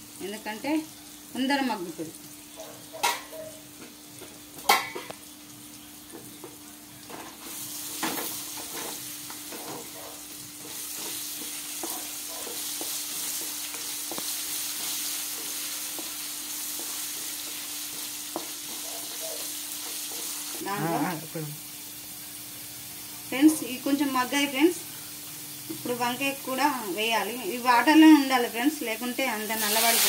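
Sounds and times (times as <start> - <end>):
vegetables sizzling in oil: 0.0 - 30.0
spatula scraping and tapping pan: 6.1 - 20.7.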